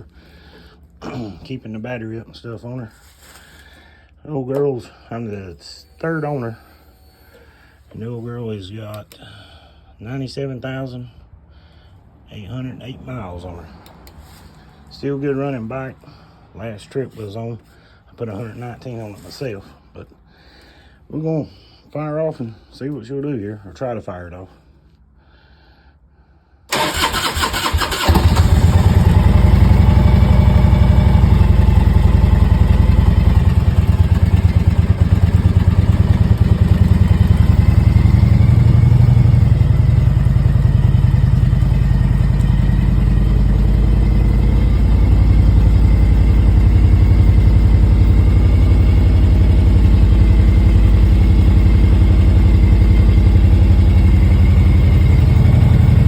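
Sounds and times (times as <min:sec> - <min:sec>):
motorcycle engine cranking: 0:26.7 - 0:43.3
motorcycle engine idling: 0:26.8 - 0:56.0.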